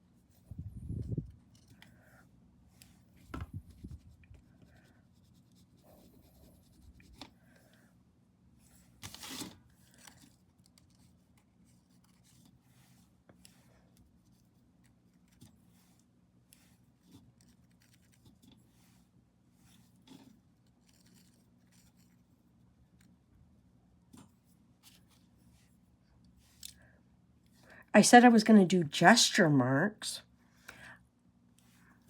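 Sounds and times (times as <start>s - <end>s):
painting tools scratching on paper: 3.7s - 7.2s.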